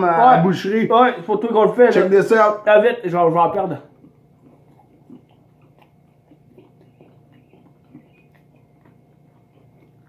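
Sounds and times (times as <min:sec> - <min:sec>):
lip and tongue smacks: 0:03.9 - 0:10.0.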